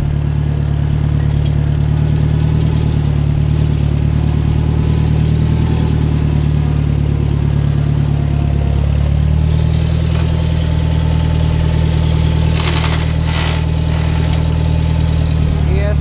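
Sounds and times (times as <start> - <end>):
tractor engine running: 0.0 - 16.0
rasping transmission jumps: 9.3 - 16.0.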